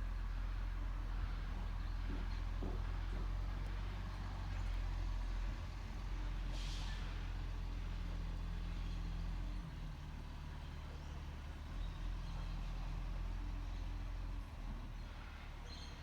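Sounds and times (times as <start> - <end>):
air brake hiss: 6.5 - 7.1.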